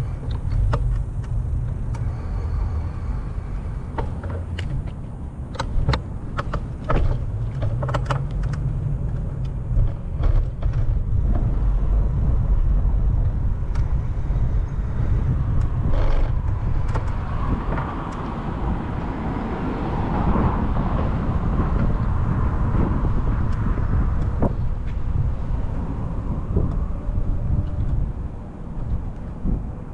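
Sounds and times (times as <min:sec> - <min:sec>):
low street rumble: 0:00.0 - 0:29.9
sharp clicks and rattles: 0:03.6 - 0:11.6, 0:13.2 - 0:25.9.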